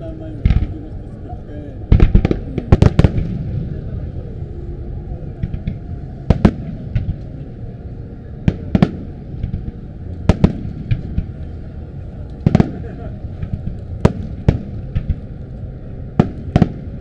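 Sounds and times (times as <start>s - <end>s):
constant low rumble: 0.0s - 17.0s.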